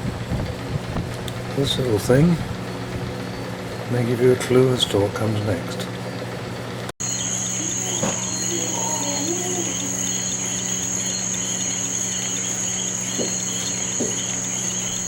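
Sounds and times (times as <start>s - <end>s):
insects trilling: 0.0s - 15.0s
low steady hum: 0.0s - 15.0s.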